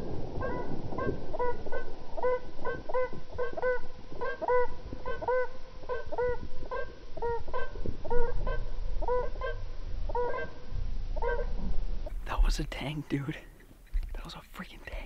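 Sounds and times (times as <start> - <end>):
low rumble: 0.0 - 4.2
birds honking: 0.0 - 11.5.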